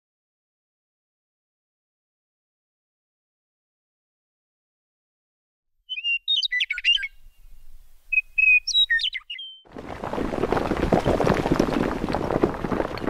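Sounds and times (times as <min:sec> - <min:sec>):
songbird chirping: 0:05.9 - 0:09.7
gritty crackling and rumbling: 0:09.7 - 0:13.0.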